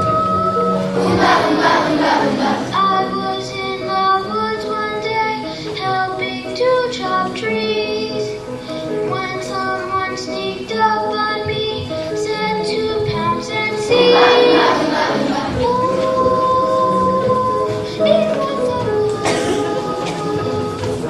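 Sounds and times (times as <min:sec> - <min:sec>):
children singing: 0:00.0 - 0:04.4, 0:12.6 - 0:21.0
musical accompaniment: 0:00.0 - 0:21.0.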